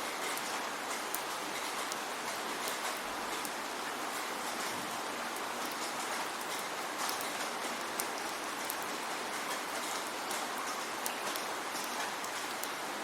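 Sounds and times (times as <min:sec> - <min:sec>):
raindrops ticking on a surface: 0:00.0 - 0:13.0.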